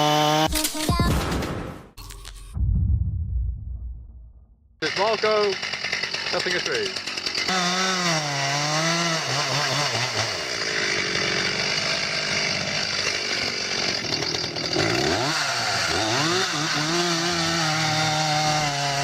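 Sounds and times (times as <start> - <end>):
chainsaw cutting a tree: 0.0 - 0.8, 4.8 - 19.0.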